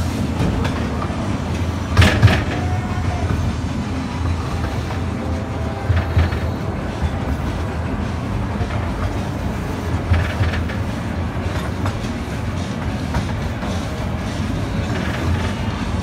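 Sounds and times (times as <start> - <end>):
ride train wheels rumbling: 0.0 - 16.0
track clacks: 0.0 - 16.0.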